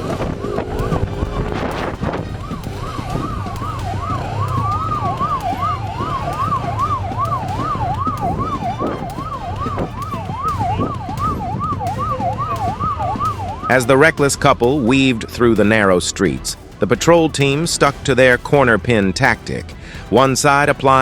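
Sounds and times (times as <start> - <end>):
police siren yelping: 0.0 - 18.8
moving vehicle rumble: 0.0 - 21.0.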